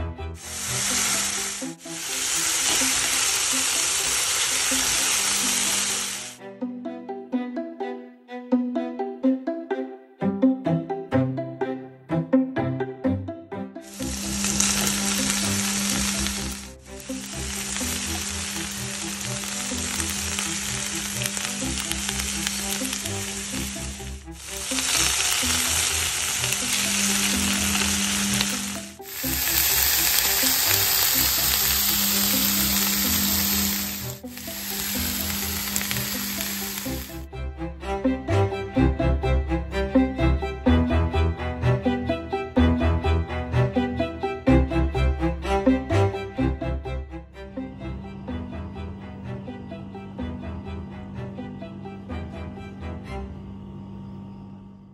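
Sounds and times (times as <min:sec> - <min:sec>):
food sizzling in a frying pan: 0:00.4 - 0:06.4, 0:13.9 - 0:37.3.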